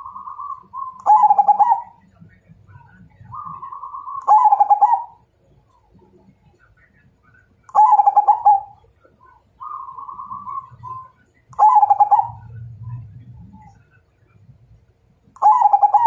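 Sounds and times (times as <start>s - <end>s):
dove cooing: 0.0s - 2.1s, 3.2s - 5.2s, 7.7s - 8.8s, 9.6s - 13.8s, 15.4s - 16.0s.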